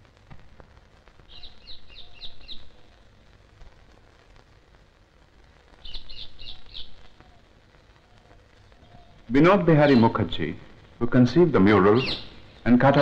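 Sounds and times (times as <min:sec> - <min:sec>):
bird chirping: 0:01.3 - 0:02.8, 0:05.8 - 0:07.1, 0:08.8 - 0:10.4, 0:11.5 - 0:13.0.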